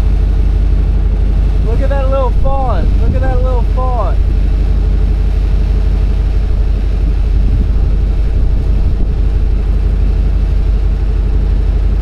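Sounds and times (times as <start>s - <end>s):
vehicle engine rumble: 0.0s - 12.0s
road noise: 1.3s - 4.4s.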